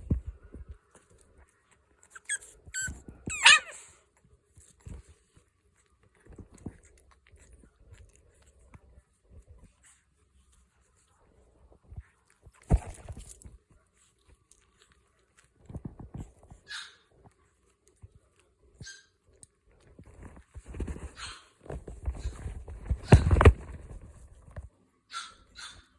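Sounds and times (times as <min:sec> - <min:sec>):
puppies whimpering and yipping: 0:02.2 - 0:04.0
bumps and rustling: 0:11.6 - 0:13.7, 0:19.9 - 0:24.7.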